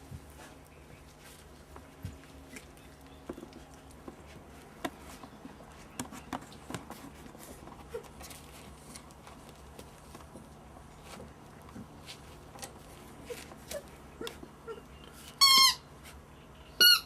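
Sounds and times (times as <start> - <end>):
puppy paws pattering: 0.0 - 16.4
puppy squeak: 15.4 - 15.9, 16.8 - 17.0.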